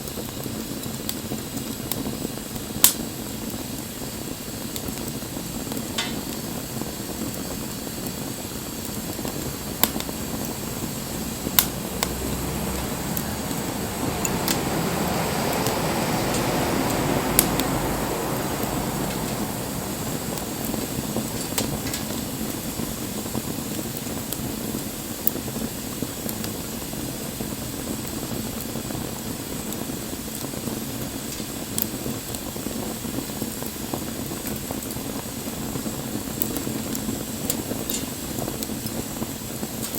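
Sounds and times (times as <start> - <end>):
flames rushing: 0.0 - 39.9
wood fire hissing: 0.0 - 39.9
wood popping and crackling: 4.7 - 25.4, 34.4 - 39.9.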